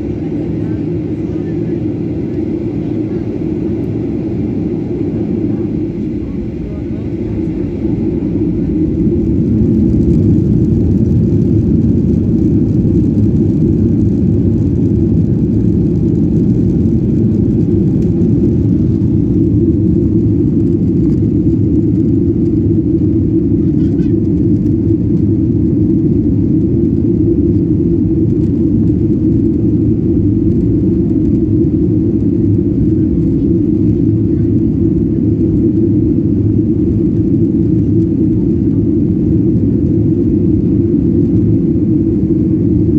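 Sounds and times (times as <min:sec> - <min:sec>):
jet engine rumble in cabin: 0:00.0 - 0:42.9.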